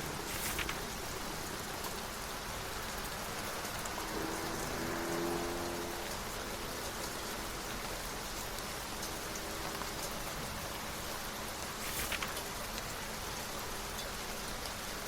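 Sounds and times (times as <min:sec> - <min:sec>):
steady rain falling: 0:00.0 - 0:15.0
book page turning: 0:00.3 - 0:00.8, 0:11.8 - 0:12.4.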